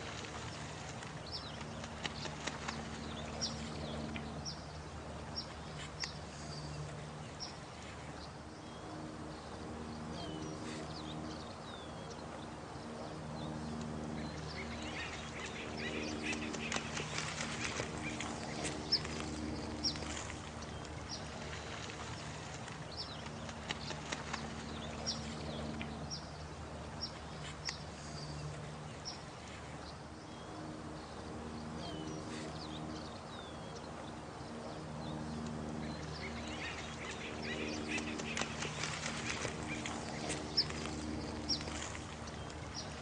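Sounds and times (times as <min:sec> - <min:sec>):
running water: 0:00.0 - 0:08.8, 0:13.8 - 0:31.4, 0:35.4 - 0:43.0.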